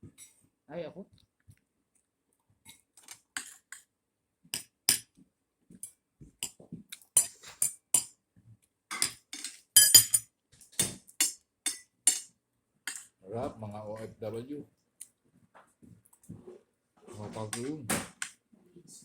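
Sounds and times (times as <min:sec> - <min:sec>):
utensils clinking on a plate: 0:03.0 - 0:03.8, 0:06.4 - 0:08.1, 0:08.9 - 0:12.3, 0:12.9 - 0:13.1.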